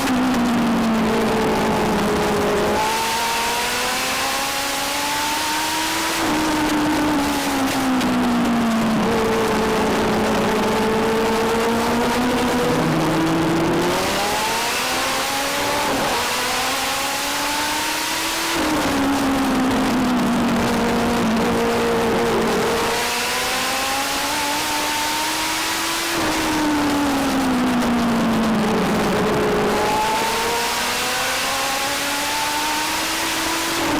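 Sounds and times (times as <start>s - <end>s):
race car engine accelerating: 0.0s - 33.9s.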